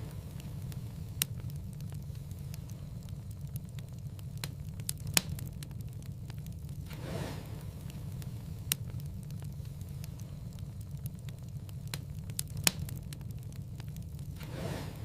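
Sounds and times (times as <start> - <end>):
low rumble: 0.0 - 15.0
wood fire crackling: 0.0 - 15.0
brief rushing hiss: 6.9 - 7.6, 14.4 - 15.0.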